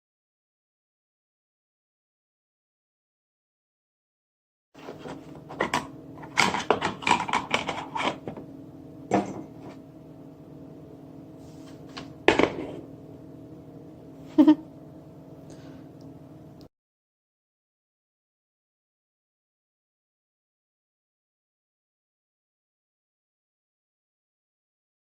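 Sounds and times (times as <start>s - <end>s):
kitchen appliance electrical hum: 4.8s - 16.7s.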